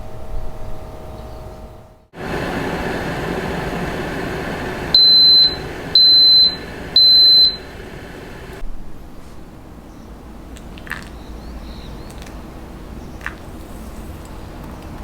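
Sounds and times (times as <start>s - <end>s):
steady whirring: 2.1s - 8.6s
high electronic beeps: 5.0s - 7.7s.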